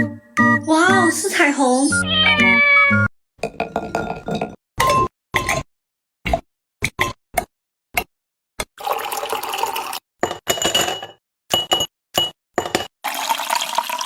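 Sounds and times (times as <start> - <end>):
liquid pouring: 8.8 - 10.0, 13.0 - 14.0.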